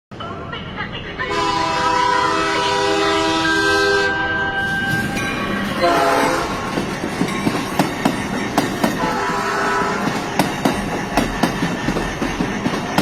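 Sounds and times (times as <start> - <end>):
train horn blast: 1.3 - 4.6, 5.8 - 6.7, 9.0 - 10.2.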